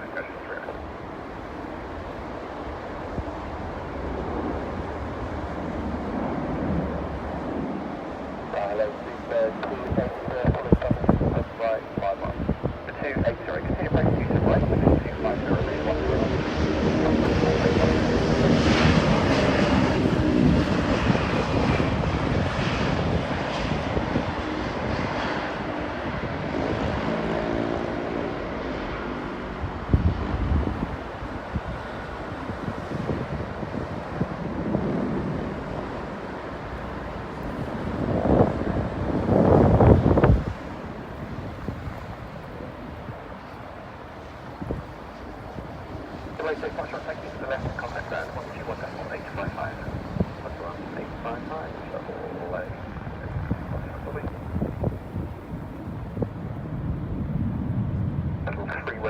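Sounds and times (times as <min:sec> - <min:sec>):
jet airliner roar: 0:00.0 - 0:59.0
wind buffeting microphone: 0:00.0 - 0:59.0.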